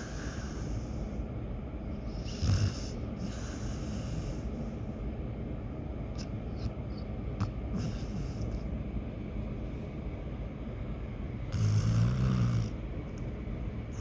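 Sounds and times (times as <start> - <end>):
dog snoring: 0.0 - 0.9, 2.1 - 4.4, 7.4 - 8.6, 11.5 - 12.8
dog breathing: 0.0 - 1.2, 2.0 - 4.9, 6.1 - 8.7, 11.5 - 12.8
low background rumble: 0.0 - 14.0.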